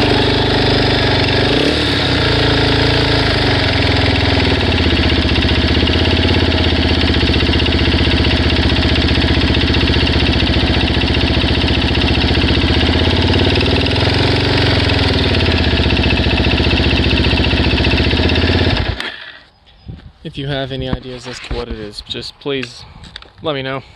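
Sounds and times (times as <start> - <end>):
engine ticking: 0.0 - 19.1
motorcycle engine idling: 0.0 - 19.1.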